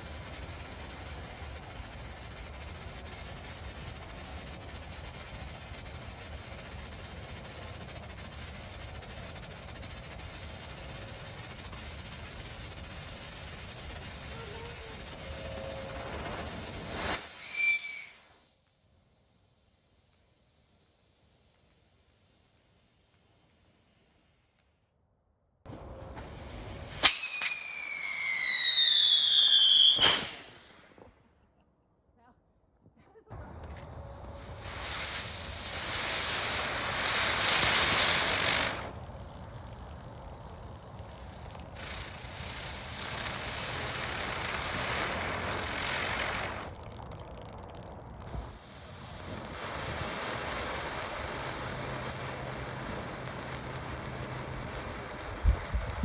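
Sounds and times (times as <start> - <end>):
firework bang: 0.0 - 18.4, 25.7 - 31.2, 41.0 - 56.0
firework crack: 0.0 - 31.5, 33.3 - 56.0
firework whistle falling in pitch: 14.4 - 18.7, 26.9 - 30.5.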